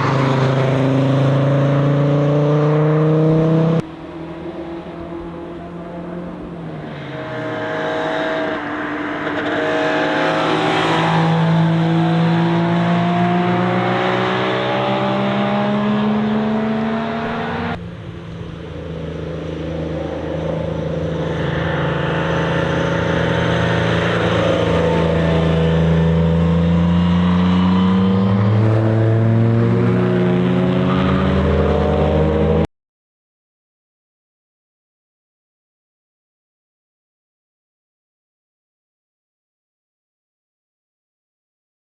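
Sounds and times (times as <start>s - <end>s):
car engines passing close by: 0.0s - 32.7s.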